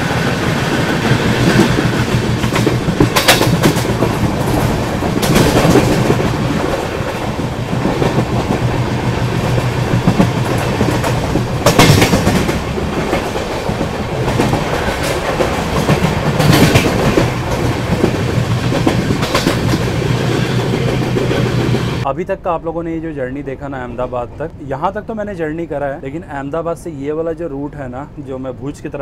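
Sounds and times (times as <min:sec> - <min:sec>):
train wheels clattering over rail joints: 0:00.0 - 0:22.0
train rattling: 0:00.0 - 0:22.1.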